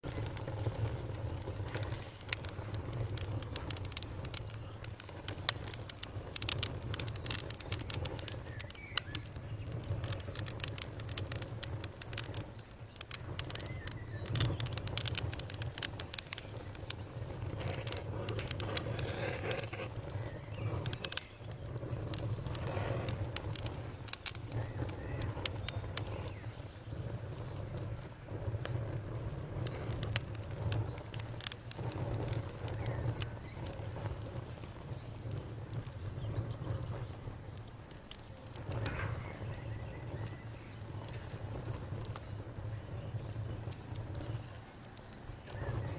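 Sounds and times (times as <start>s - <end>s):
wood fire crackling and popping: 0.0s - 45.9s.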